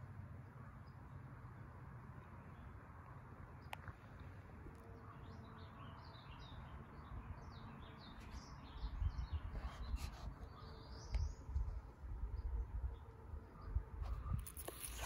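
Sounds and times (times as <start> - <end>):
small birds chirping: 3.5 - 15.0.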